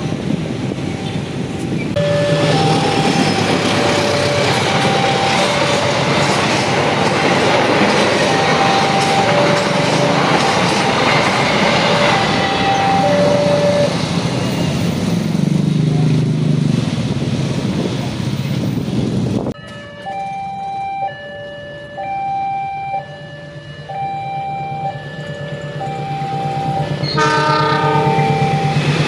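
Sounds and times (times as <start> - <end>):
crossing warning alarm: 0.0 - 15.3, 19.5 - 29.0
train rushing past: 0.0 - 19.6, 23.3 - 29.0.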